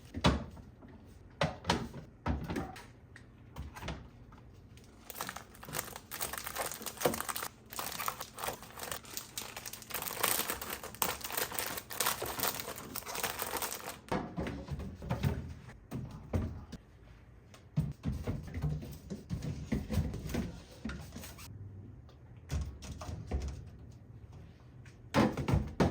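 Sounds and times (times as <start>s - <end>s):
plastic bags crinkling: 4.9s - 14.1s.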